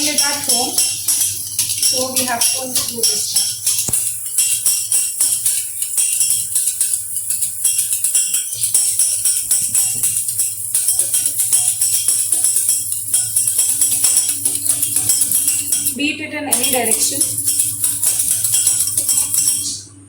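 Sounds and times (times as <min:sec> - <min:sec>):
whisk clinking in metal pan: 0:00.0 - 0:19.8.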